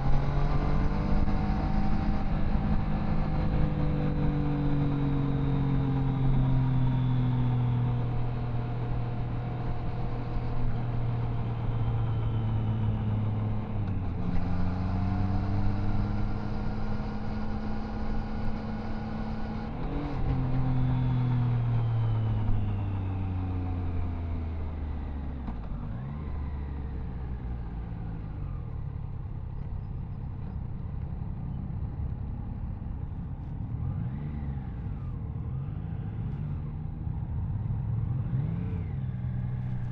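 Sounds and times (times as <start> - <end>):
engine revving: 0.0 - 25.0, 38.0 - 39.9.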